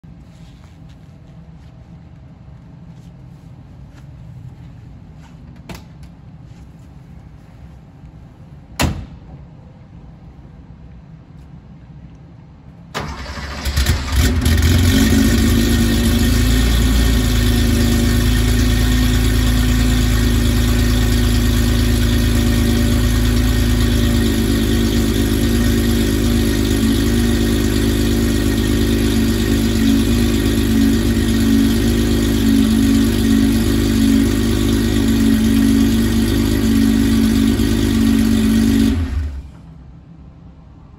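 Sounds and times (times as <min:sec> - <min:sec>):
car engine starting and idling: 0:12.7 - 0:39.8.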